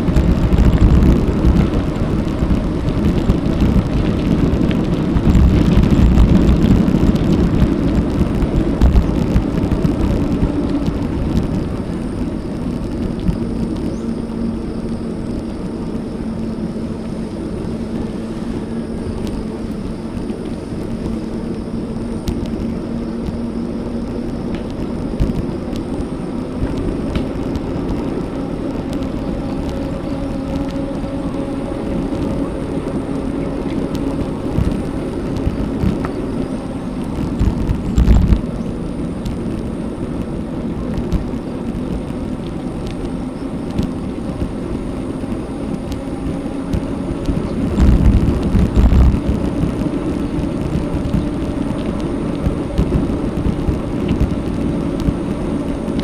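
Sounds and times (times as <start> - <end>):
bicycle tyre and road noise: 0.0 - 56.0
wind rushing over microphone: 0.0 - 56.0.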